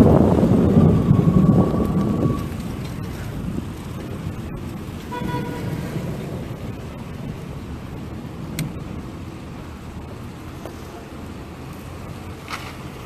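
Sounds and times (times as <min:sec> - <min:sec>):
road traffic: 0:00.0 - 0:13.0
wind rumble on microphone: 0:00.0 - 0:13.0
short horn-like tone: 0:05.1 - 0:05.9.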